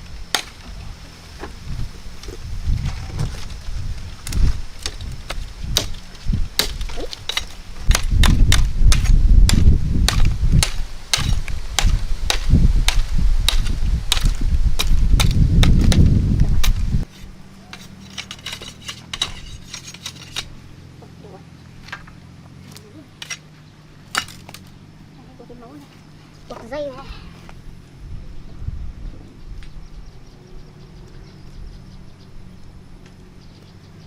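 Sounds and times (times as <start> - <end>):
wind rumble on microphone: 0.0 - 17.8, 23.7 - 34.0
blade chopping wood: 0.3 - 0.7, 4.2 - 20.6, 24.1 - 24.7.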